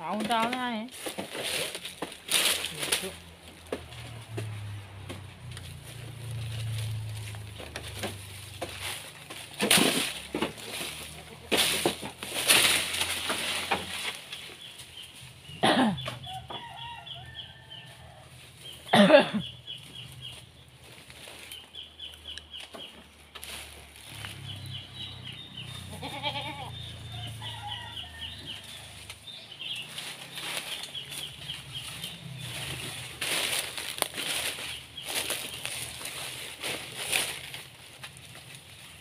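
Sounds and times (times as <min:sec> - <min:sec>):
birds chirping: 0:13.2 - 0:17.8, 0:18.6 - 0:39.0.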